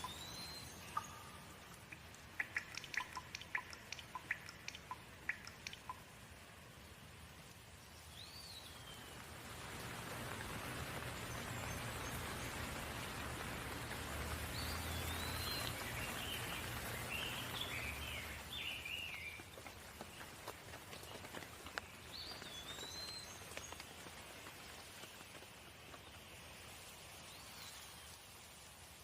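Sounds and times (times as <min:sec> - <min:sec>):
bird chirps: 0:00.0 - 0:06.1, 0:14.5 - 0:19.7
rain falling: 0:00.0 - 0:29.0.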